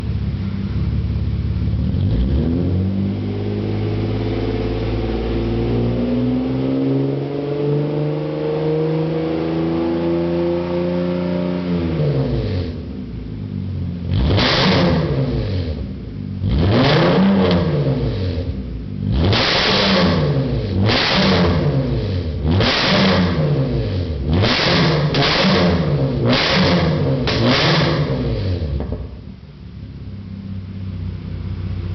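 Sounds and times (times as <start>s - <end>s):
car engine revving: 0.0s - 29.2s.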